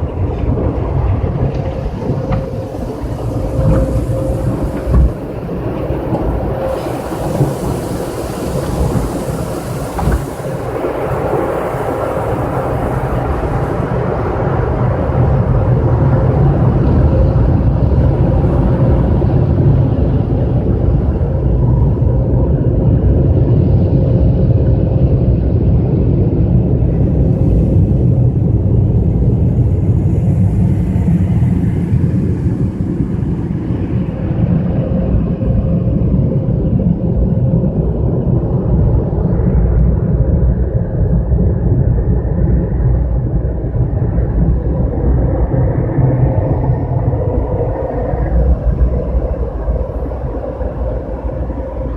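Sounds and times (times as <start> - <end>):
car wash machinery rumbling: 0.0 - 51.9
machinery hiss: 1.8 - 14.2.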